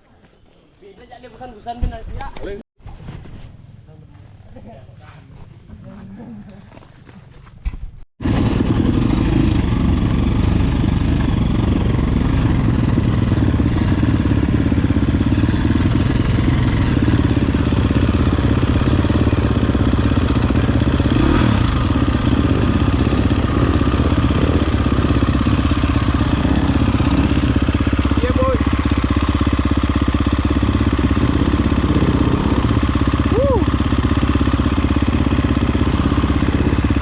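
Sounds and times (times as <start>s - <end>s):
dirt bike engine running: 8.2s - 37.0s.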